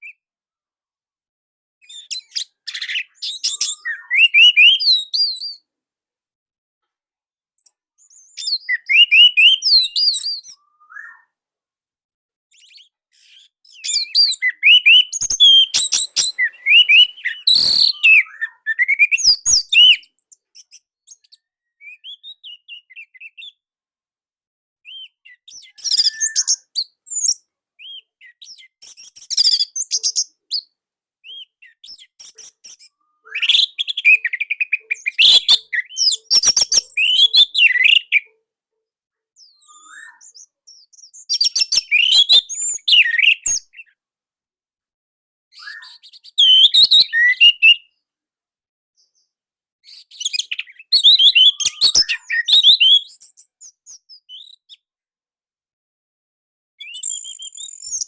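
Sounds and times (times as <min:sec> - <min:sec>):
thrush singing whistled phrases: 0:01.8 - 0:05.7, 0:08.0 - 0:11.4, 0:12.6 - 0:23.6, 0:24.9 - 0:38.3, 0:39.5 - 0:44.0, 0:45.6 - 0:47.9, 0:49.9 - 0:53.3, 0:56.8 - 0:58.0.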